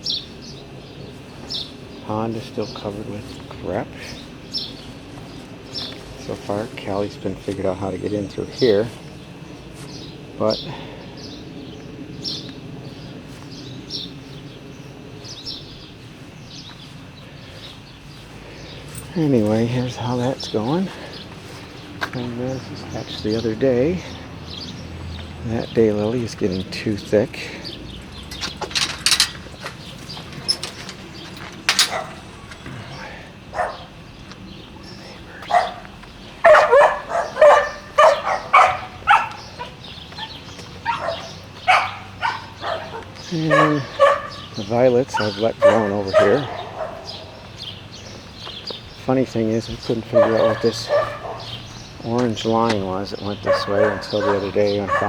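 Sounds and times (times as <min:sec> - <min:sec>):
bird chirping: 0:00.0 - 0:55.0
dog barking: 0:31.9 - 0:32.3, 0:33.5 - 0:33.9, 0:35.4 - 0:47.5, 0:50.1 - 0:51.7, 0:53.4 - 0:55.0.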